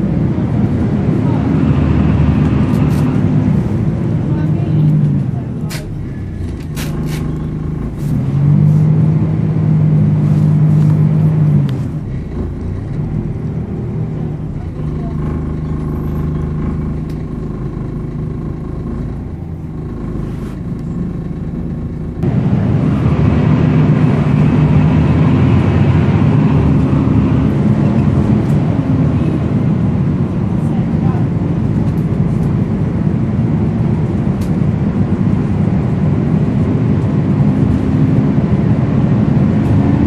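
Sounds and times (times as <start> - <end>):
bus engine running: 0.0 - 40.0
rush of noise: 22.2 - 40.0.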